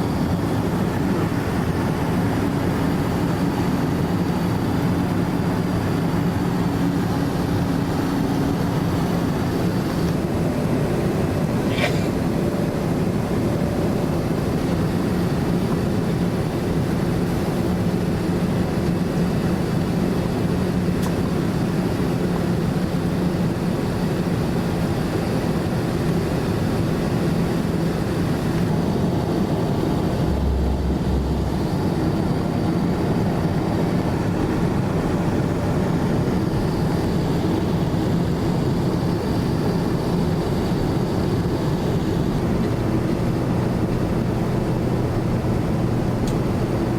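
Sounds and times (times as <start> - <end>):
airliner cabin engine and airflow rush: 0.0 - 46.9
low steady hum: 28.0 - 35.2.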